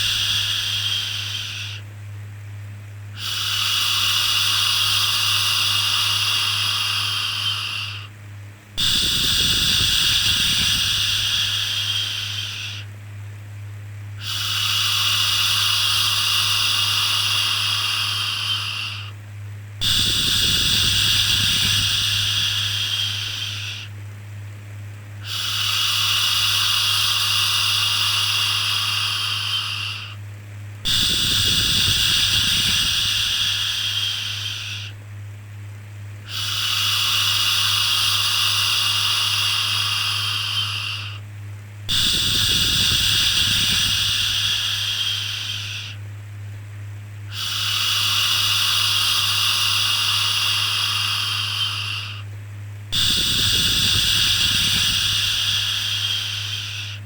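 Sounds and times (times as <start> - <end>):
steady low hum: 0.0 - 57.0
person shushing: 53.0 - 57.0.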